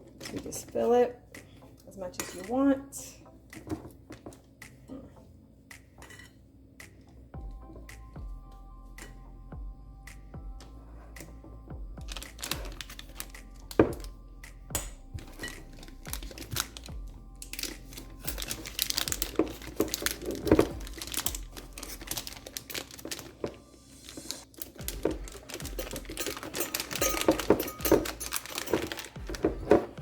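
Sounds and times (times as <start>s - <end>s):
plastic piping bag crinkling: 12.0s - 14.1s, 15.2s - 30.0s.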